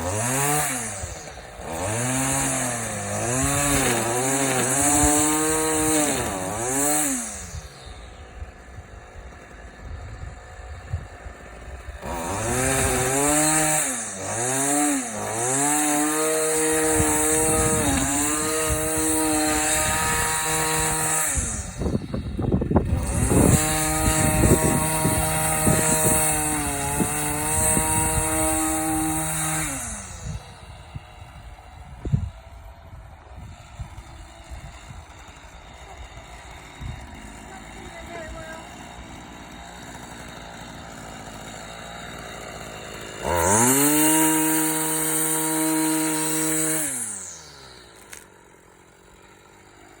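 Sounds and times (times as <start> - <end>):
small motor running: 0.0 - 50.0
motor spinning with high hiss: 39.5 - 49.8.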